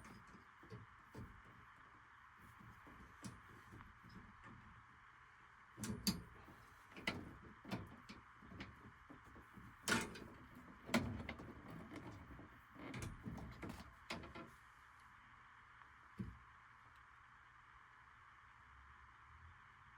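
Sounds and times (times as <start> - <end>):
metal parts clanking: 5.8 - 14.4.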